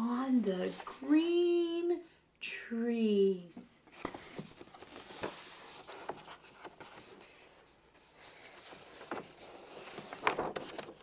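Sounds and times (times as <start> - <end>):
paper page rustling: 4.0 - 11.0.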